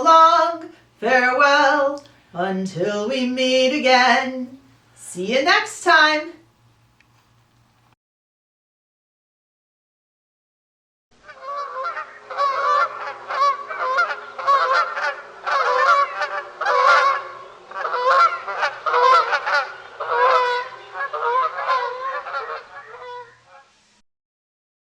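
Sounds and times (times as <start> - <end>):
waterfowl calling: 11.2 - 23.7.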